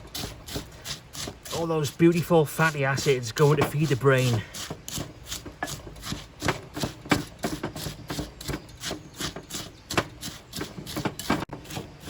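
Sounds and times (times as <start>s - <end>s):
utensil scraping a mixing bowl: 0.0s - 12.0s.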